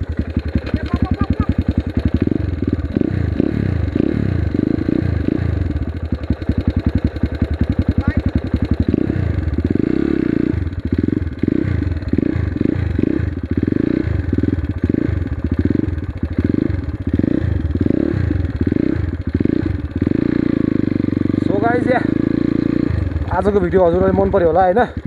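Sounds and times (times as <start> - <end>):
dirt bike engine running: 0.0 - 25.0.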